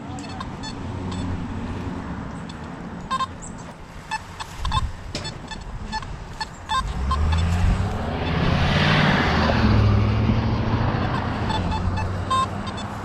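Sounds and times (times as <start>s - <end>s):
metal detector beeps: 0.0s - 1.4s, 2.4s - 7.6s, 10.8s - 13.0s
low rumble of passing traffic: 0.0s - 13.0s.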